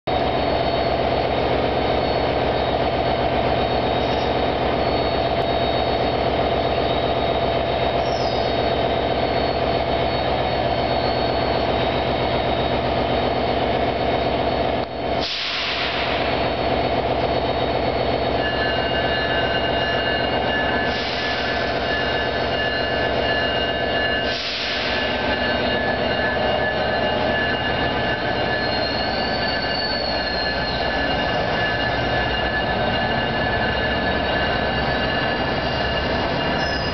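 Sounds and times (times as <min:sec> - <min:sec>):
diesel train drone: 0:00.1 - 0:36.9
wheels squealing on rail: 0:00.1 - 0:36.9
air hiss bursts: 0:15.2 - 0:16.2.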